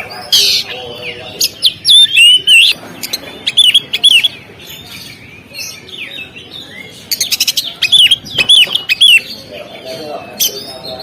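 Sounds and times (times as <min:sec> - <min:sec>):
bird singing whistled phrases: 0:01.6 - 0:02.8.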